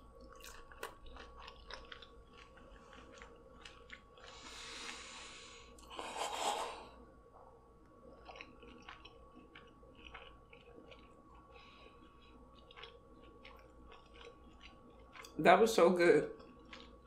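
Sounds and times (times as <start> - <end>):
wet chewing mouth sounds: 0.1 - 5.2, 8.1 - 15.4, 16.4 - 17.0.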